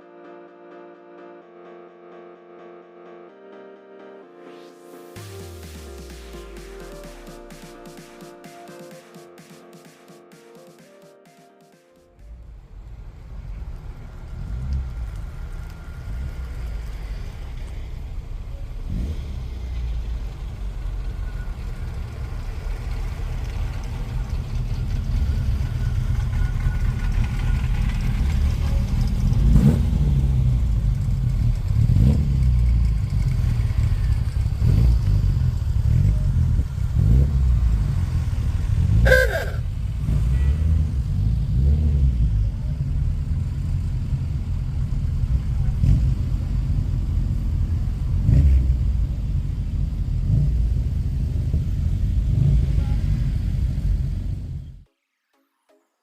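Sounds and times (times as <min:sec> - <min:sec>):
car engine revving: 0:12.2 - 0:54.7
brief sharp sound: 0:39.1 - 0:39.6.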